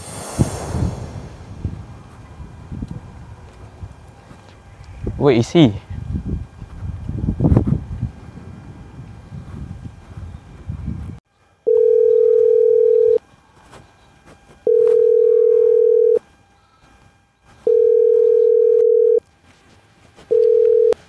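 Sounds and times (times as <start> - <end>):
telephone ringback tone: 11.7 - 13.2, 14.7 - 16.2, 17.6 - 19.2, 20.3 - 21.0.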